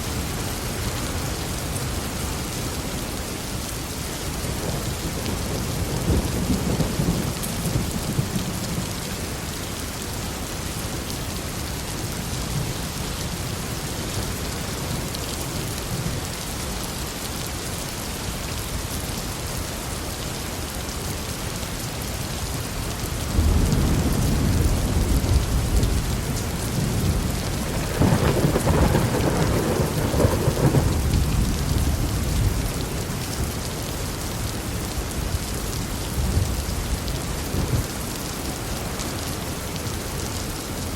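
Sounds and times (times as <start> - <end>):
heavy rain falling: 0.0 - 40.9
thunder rumbling: 23.3 - 33.5.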